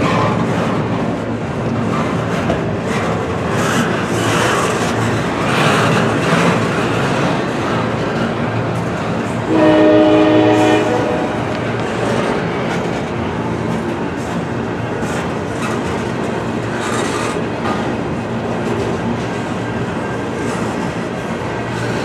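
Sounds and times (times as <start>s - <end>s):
freight train rumbling past: 0.0s - 22.0s
wheels clacking over rail joints: 0.0s - 22.0s
locomotive air horn chord: 9.5s - 11.6s.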